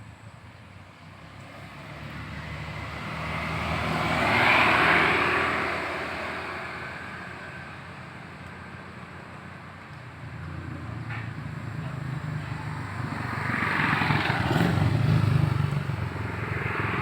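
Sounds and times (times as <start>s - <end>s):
motor vehicle passing by: 1.0s - 7.8s, 10.2s - 17.0s.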